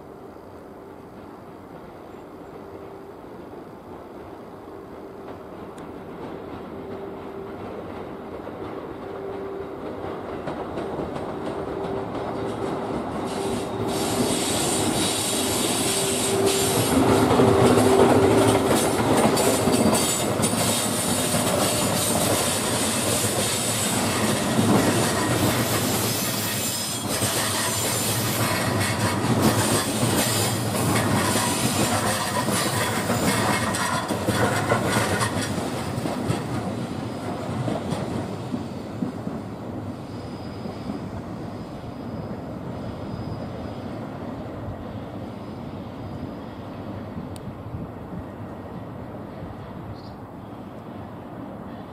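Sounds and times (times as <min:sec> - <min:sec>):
train wheels squealing: 0:12.4 - 0:47.3.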